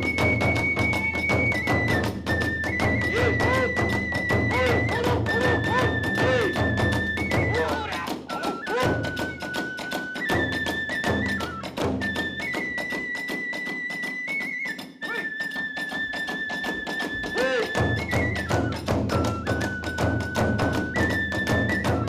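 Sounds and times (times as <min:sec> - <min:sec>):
big drum beats: 0:00.0 - 0:09.4, 0:17.4 - 0:22.0
bamboo flute long notes: 0:00.0 - 0:22.0.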